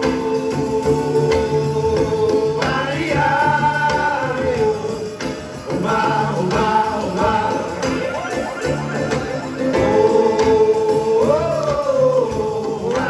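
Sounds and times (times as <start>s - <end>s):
guitar: 0.0s - 13.0s
voices singing sustained notes: 0.0s - 13.0s
pulsing bass line: 6.1s - 11.7s.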